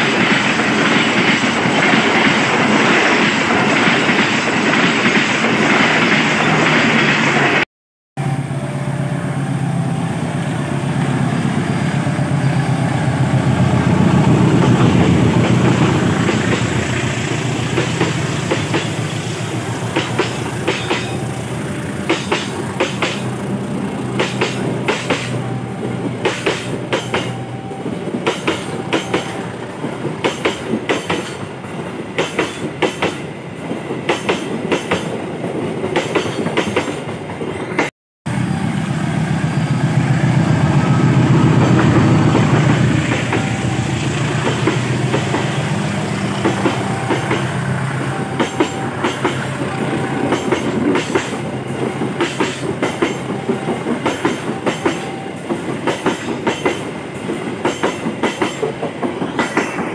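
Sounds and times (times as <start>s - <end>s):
train wheels clicking over rail joints: 13.4s - 37.9s, 41.4s - 59.9s.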